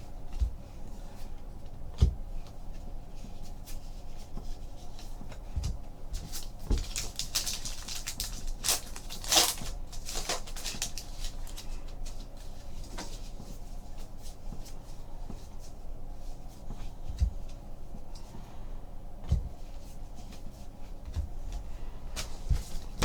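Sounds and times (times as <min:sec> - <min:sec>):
paper rustling: 0:06.2 - 0:12.3.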